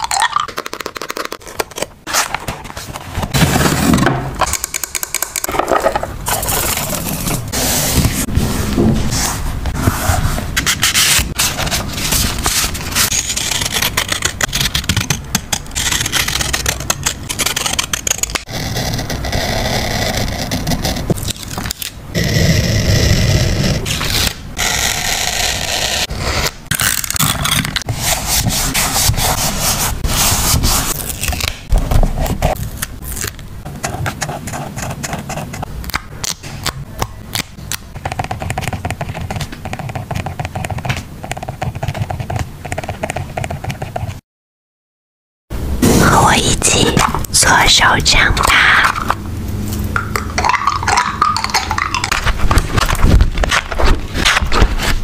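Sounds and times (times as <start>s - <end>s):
paper rubbing noise: 6.3s - 26.5s, 27.4s - 32.7s.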